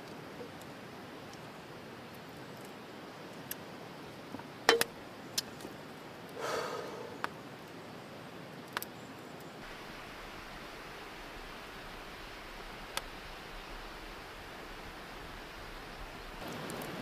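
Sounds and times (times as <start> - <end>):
low steady hiss: 0.0 - 17.0
short breathy rush: 6.4 - 7.2.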